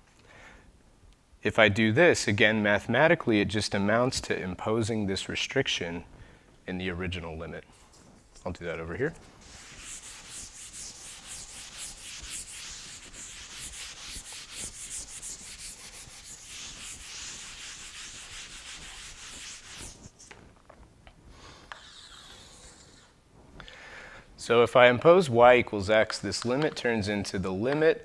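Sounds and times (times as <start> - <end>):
eraser scrubbing a blackboard: 9.4 - 20.3.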